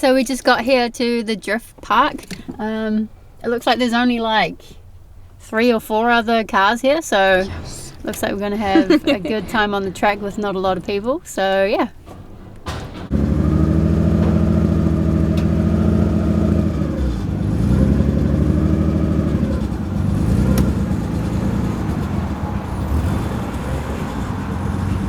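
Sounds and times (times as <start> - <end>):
car engine revving: 12.8 - 25.0.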